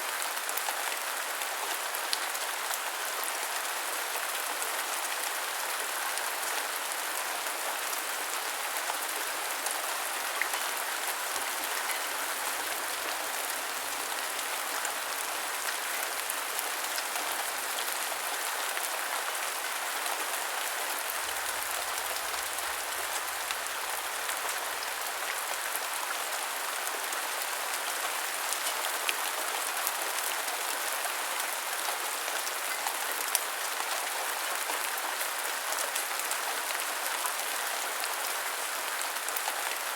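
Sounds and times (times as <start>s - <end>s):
heavy rain falling: 0.1s - 39.9s.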